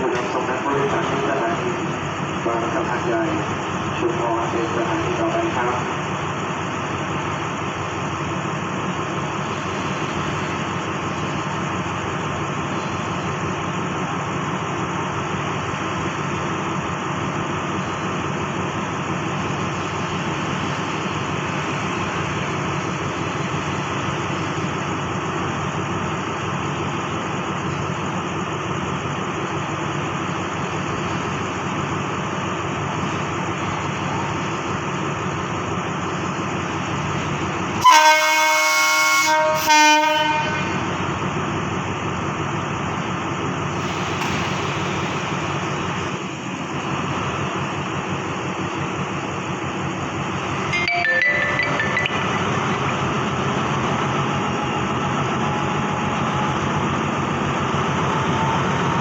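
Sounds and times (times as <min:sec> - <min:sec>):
diesel train rumbling: 0:00.0 - 0:59.0
train air horn blasts: 0:37.8 - 0:41.0.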